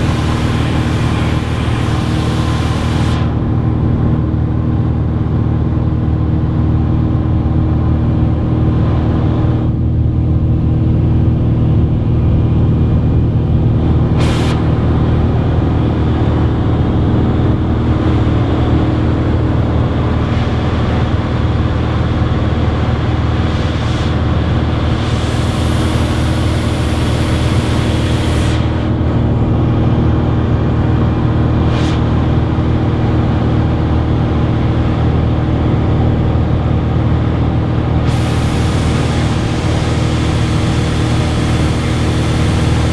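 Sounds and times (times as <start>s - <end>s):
propeller plane engine droning: 0.0s - 42.9s
short bursts of hiss: 38.1s - 42.9s.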